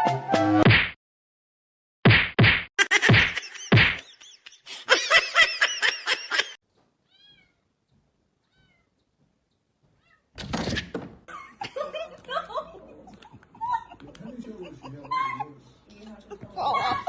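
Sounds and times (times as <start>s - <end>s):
cat meowing: 7.0s - 7.7s, 8.4s - 9.0s, 10.0s - 10.3s.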